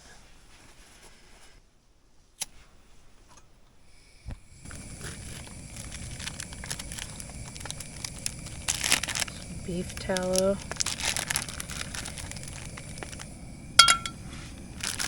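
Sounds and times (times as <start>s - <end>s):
stove burner rushing: 2.4s - 15.0s
small crackles and ticks: 4.3s - 15.0s.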